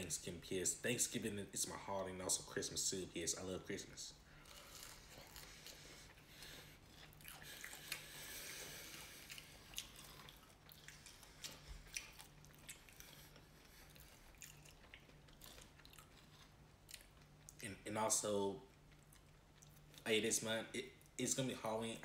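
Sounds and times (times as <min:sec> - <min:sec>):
low steady hum: 0:00.0 - 0:22.0
chewing fries: 0:04.3 - 0:17.6, 0:18.6 - 0:20.1.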